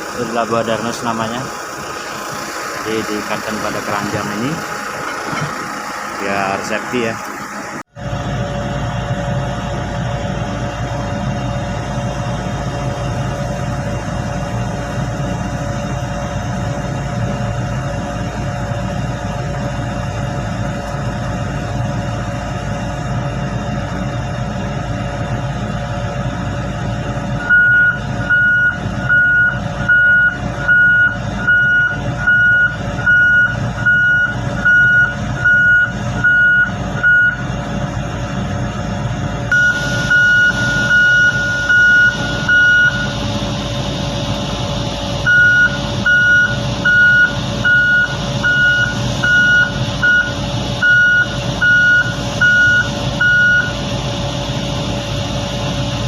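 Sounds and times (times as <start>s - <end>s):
diesel engine rumble: 0.0s - 56.0s
reversing alarm beeping: 27.4s - 37.5s, 39.5s - 43.3s, 45.2s - 53.8s.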